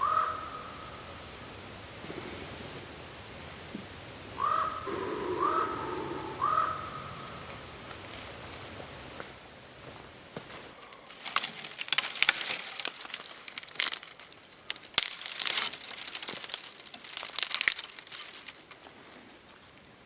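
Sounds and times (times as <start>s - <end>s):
crinkling and crackling: 10.4s - 20.0s.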